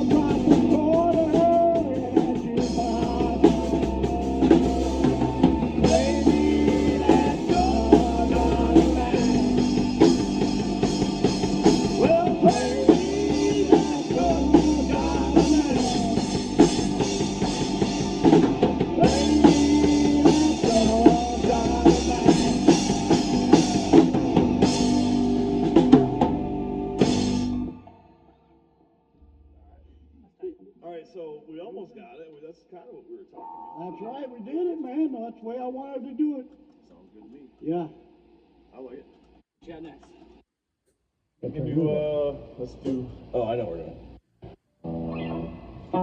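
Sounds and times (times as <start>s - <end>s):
person singing: 0.0s - 10.2s, 11.8s - 16.9s, 18.7s - 24.8s
bass line: 0.0s - 27.8s, 44.9s - 46.0s
drum kit: 0.0s - 27.9s.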